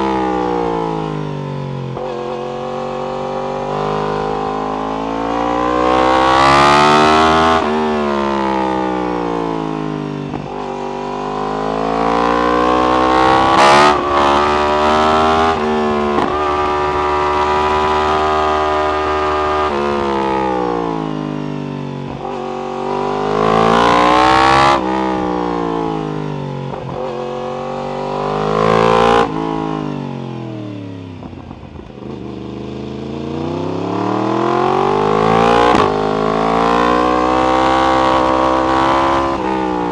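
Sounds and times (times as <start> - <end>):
motorcycle engine revving: 0.0 - 39.9
exhaust crack: 11.9 - 21.1, 31.2 - 39.9.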